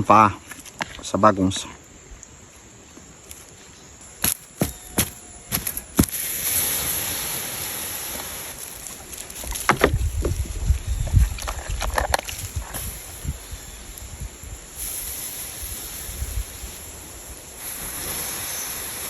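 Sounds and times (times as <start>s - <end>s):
embers hissing with steam: 4.2s - 19.0s.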